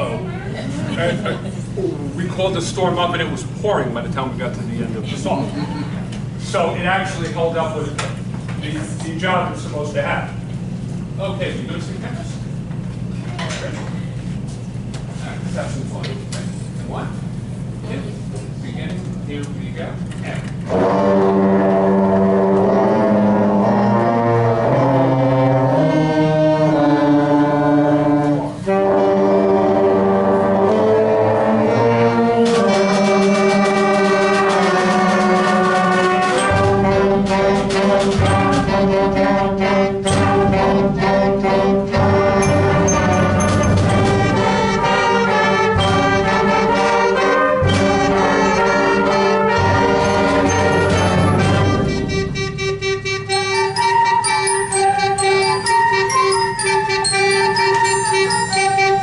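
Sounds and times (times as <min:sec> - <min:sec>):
brass chords: 0:20.6 - 0:59.0
drums and cymbals: 0:32.4 - 0:59.0.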